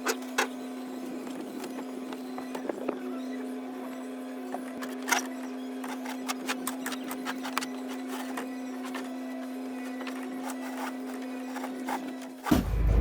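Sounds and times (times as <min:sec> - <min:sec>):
steady hum: 0:12.5 - 0:13.0.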